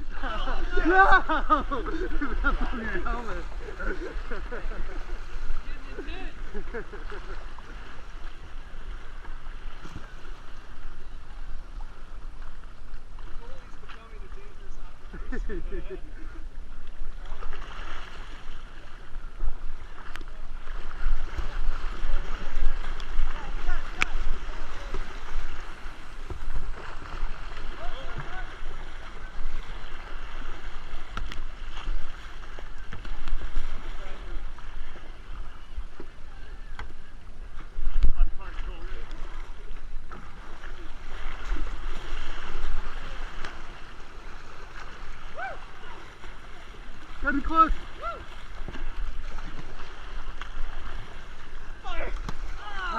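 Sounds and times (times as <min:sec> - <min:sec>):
water splashing against kayaks: 0:00.0 - 0:52.9
faint distant shouts: 0:45.2 - 0:46.2, 0:47.8 - 0:48.4.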